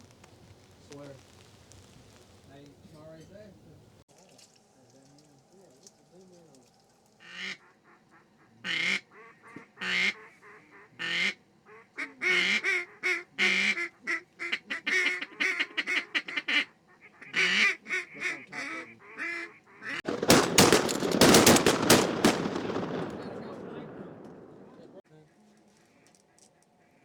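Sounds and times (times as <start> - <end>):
duck quacking: 7.2 - 20.0
shotguns firing: 20.0 - 25.0.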